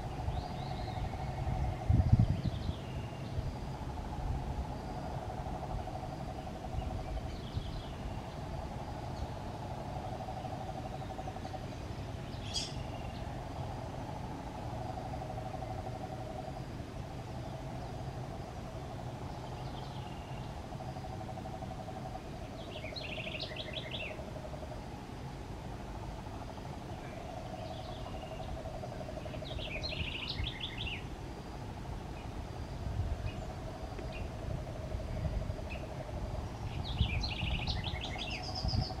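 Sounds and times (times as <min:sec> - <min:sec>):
bird chattering: 0:10.5 - 0:13.3.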